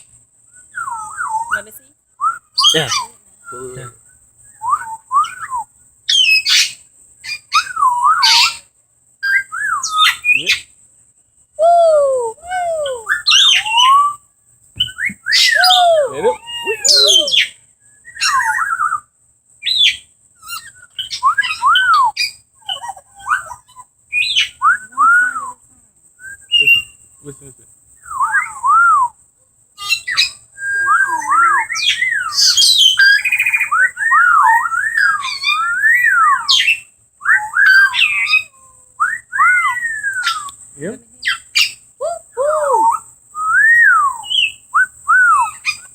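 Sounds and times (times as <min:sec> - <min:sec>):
parrots whistling calls: 0:00.7 - 0:03.9, 0:04.6 - 0:08.6, 0:11.6 - 0:14.2, 0:14.8 - 0:19.0, 0:19.7 - 0:25.6, 0:29.8 - 0:40.6
parrot squawks: 0:15.3 - 0:17.5.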